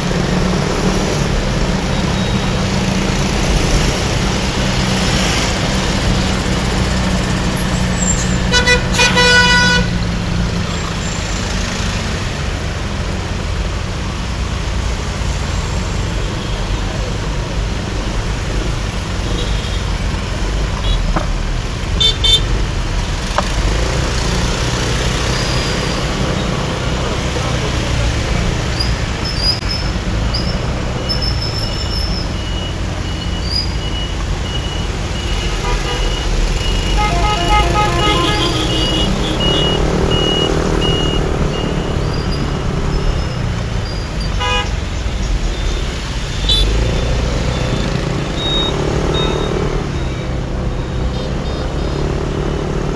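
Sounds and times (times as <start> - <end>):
motorbike engine and road rumble: 0.0 - 52.9
vehicle horns tooting: 7.6 - 10.0, 35.2 - 42.5, 44.2 - 44.9, 46.3 - 50.2
horn rapid short beeps: 31.1 - 42.0, 46.3 - 52.0.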